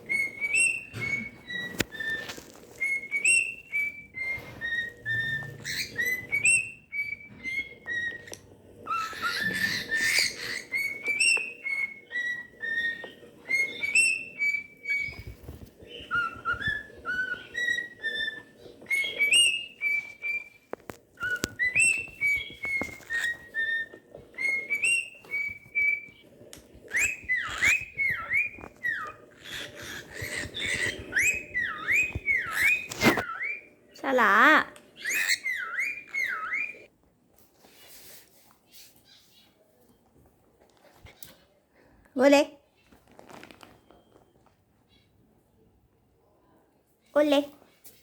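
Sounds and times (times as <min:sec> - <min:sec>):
cockatiel whistling: 0:00.0 - 0:36.9.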